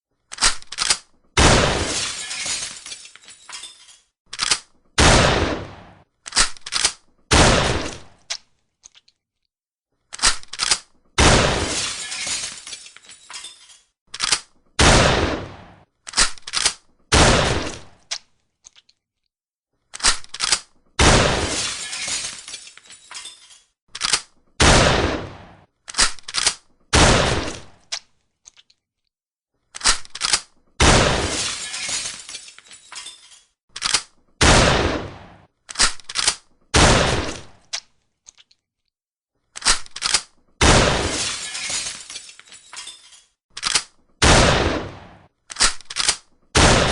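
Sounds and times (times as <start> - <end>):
shotgun action clicking: 0.3 - 1.1, 33.7 - 34.2, 43.6 - 44.0, 45.5 - 46.3
shotgun blasts: 1.4 - 2.0, 5.0 - 6.0, 7.3 - 8.2, 11.2 - 11.8, 14.8 - 15.8, 17.1 - 17.9, 21.0 - 21.6, 24.6 - 25.7, 26.9 - 27.8, 30.8 - 31.4, 34.4 - 35.5, 36.8 - 37.6, 40.6 - 41.2, 44.2 - 45.3, 46.6 - 46.9.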